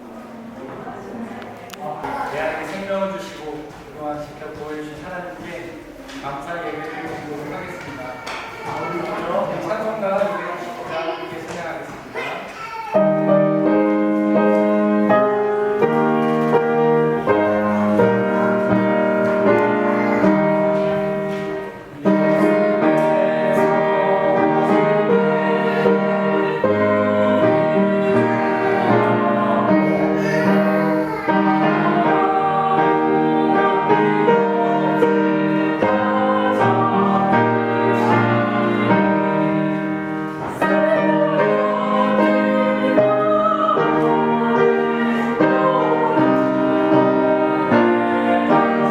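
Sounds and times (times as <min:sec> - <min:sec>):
hymn on piano: 0:00.0 - 0:48.9
people singing: 0:13.1 - 0:48.9.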